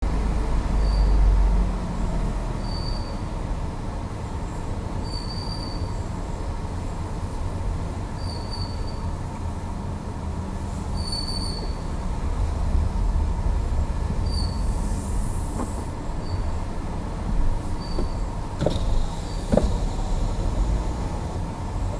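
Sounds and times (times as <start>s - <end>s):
steady low rumble: 11.7s - 15.5s
steering squeaking: 17.6s - 20.3s.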